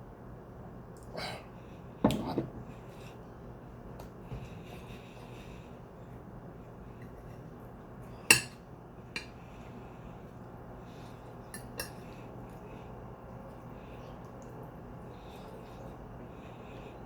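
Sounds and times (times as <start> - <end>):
low steady hum: 0.0 - 17.0
cutlery clinking against plate: 2.1 - 2.5, 8.3 - 8.6.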